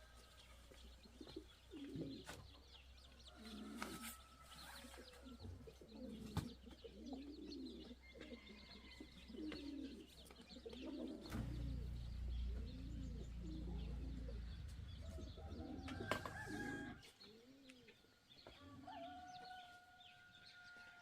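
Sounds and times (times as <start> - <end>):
pigeons cooing: 0.0 - 19.4
small birds chirping: 0.0 - 21.0
low rumble: 11.3 - 15.9.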